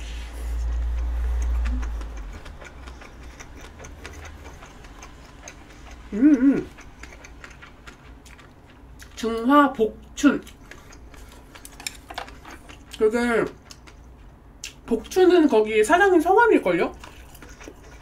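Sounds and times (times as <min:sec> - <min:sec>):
chewing with wet mouth clicks: 0:00.4 - 0:15.2, 0:16.9 - 0:18.0
person humming mm-mm: 0:06.1 - 0:06.8.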